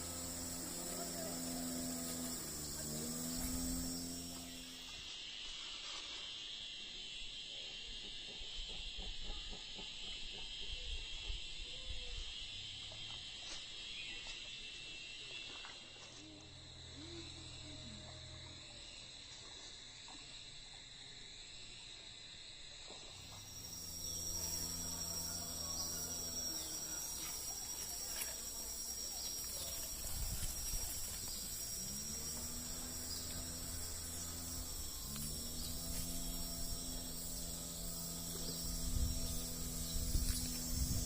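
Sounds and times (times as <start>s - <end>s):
low steady hum: 0.0s - 5.0s, 23.2s - 41.0s
high-pitched insect drone: 0.0s - 41.0s.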